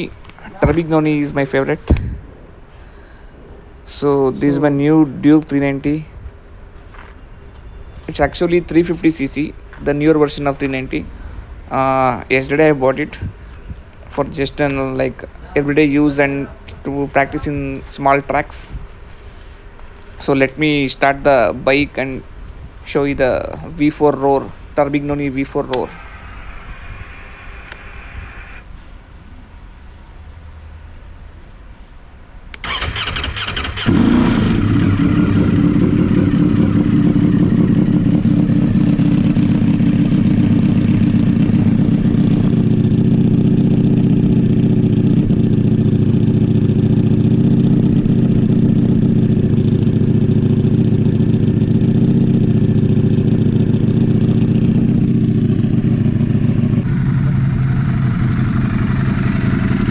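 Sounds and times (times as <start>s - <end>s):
starter motor cranking: 25.2s - 28.6s, 32.6s - 36.2s
motorcycle engine running loudly: 25.4s - 28.6s, 33.7s - 59.9s.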